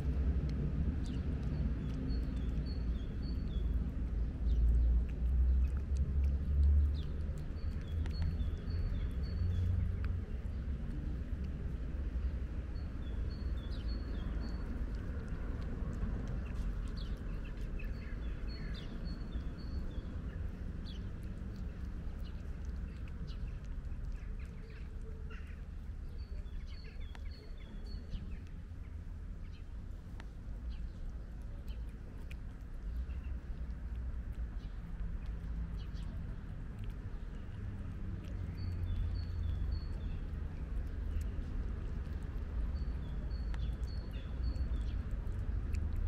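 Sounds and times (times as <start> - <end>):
cat chewing dry kibble: 0.0 - 46.0
small birds chirping: 0.0 - 46.0
steady low rumble: 0.0 - 46.0.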